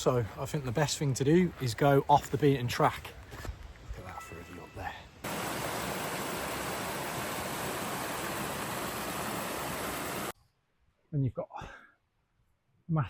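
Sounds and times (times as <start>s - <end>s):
running water rushing: 5.2s - 10.3s.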